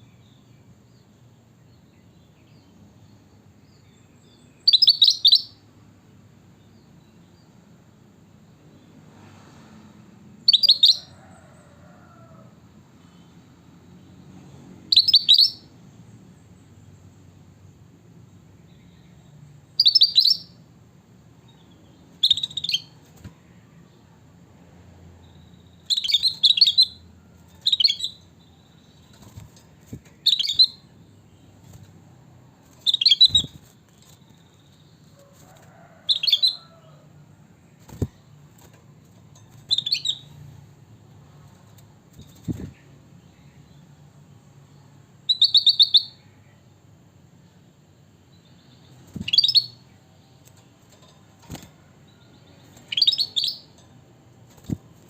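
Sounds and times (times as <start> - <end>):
bird chirping: 0.0 - 5.6, 10.4 - 11.2, 14.9 - 17.2, 18.6 - 20.7, 21.4 - 23.1, 25.1 - 32.0, 32.6 - 35.2, 37.9 - 40.6, 44.7 - 46.8, 48.2 - 54.0.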